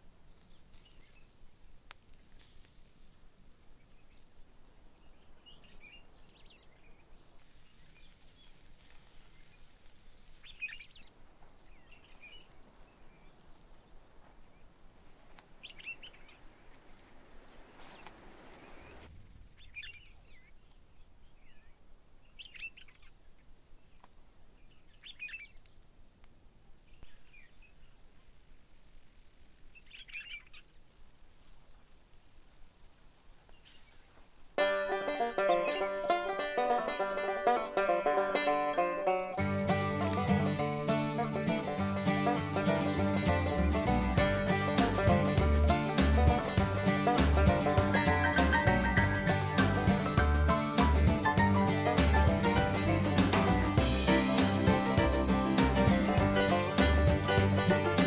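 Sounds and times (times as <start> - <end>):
birds chirping: 0.0 - 1.4, 2.8 - 25.8, 26.8 - 28.2, 29.7 - 32.0, 33.4 - 58.0
soft rush of noise: 0.0 - 22.4, 25.6 - 34.6.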